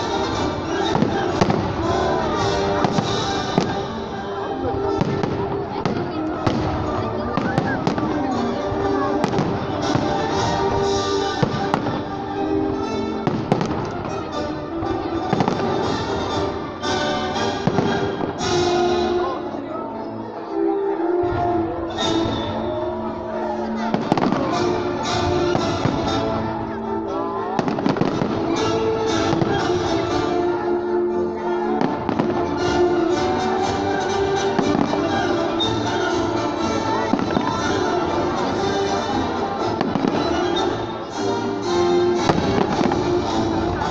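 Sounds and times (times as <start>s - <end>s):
music playing: 0.0s - 43.9s
fireworks bangs: 0.1s - 8.5s, 9.2s - 14.3s, 15.0s - 19.1s, 23.9s - 26.2s, 27.6s - 30.2s, 31.8s - 36.4s, 37.0s - 40.9s, 42.1s - 43.9s.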